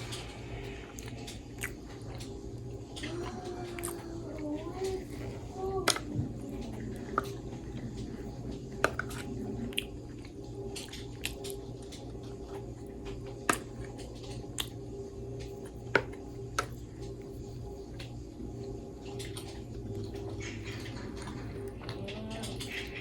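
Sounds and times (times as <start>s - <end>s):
chewing sounds: 0.0s - 14.8s
low hum: 0.0s - 23.0s.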